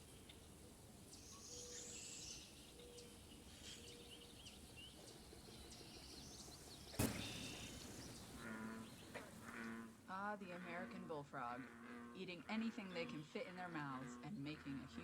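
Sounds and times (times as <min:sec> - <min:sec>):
small birds chirping: 0:00.0 - 0:09.9
sharp loud click: 0:07.0 - 0:07.8.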